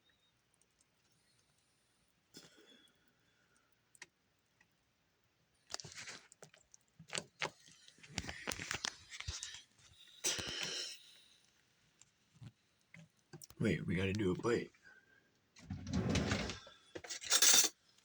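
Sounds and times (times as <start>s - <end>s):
rustling and clattering: 15.6s - 17.7s.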